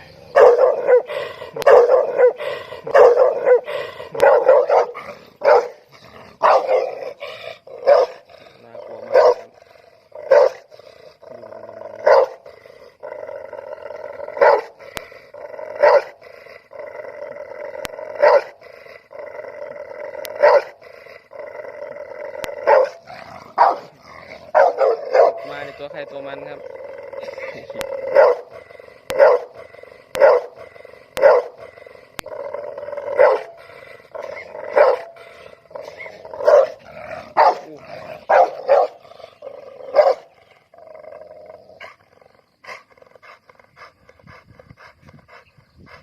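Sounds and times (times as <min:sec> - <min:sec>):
dog growling: 0:00.0 - 0:46.0
large dog barking: 0:00.0 - 0:46.0.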